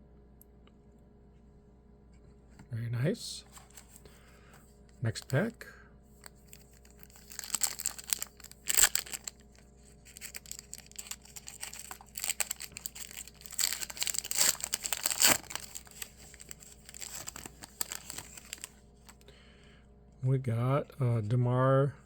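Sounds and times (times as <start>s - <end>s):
card pack wrapper tearing and crinkling: 5.1s - 5.4s, 6.2s - 19.2s.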